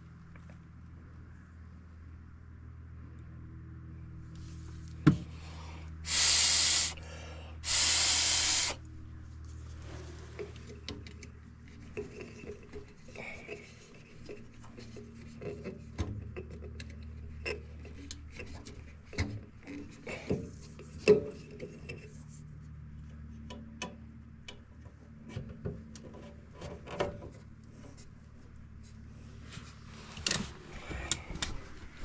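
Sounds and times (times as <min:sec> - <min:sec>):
steady low hum: 0:00.0 - 0:32.0
air hissing through tubing: 0:06.0 - 0:08.8.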